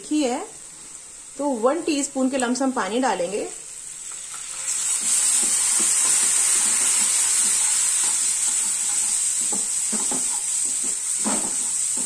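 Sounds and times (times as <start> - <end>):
masala sizzling in hot oil: 0.0 - 12.0
spatula tapping: 5.4 - 12.0.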